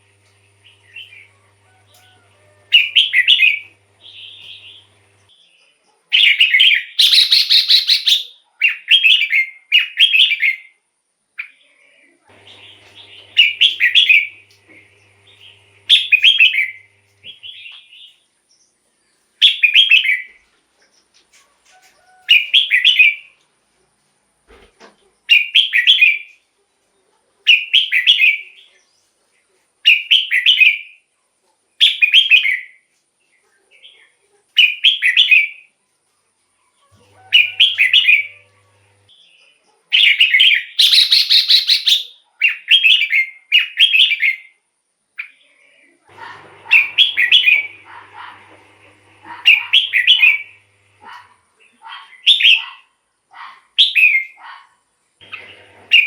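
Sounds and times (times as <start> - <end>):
bird warbling song: 0.6 - 5.1, 6.2 - 8.3, 37.3 - 39.0, 40.0 - 42.1, 49.4 - 51.4.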